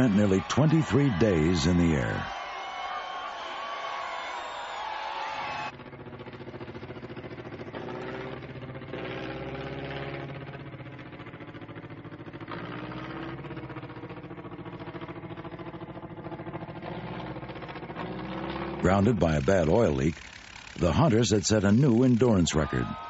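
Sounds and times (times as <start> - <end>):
propeller aircraft piston engine: 18.9 - 22.7.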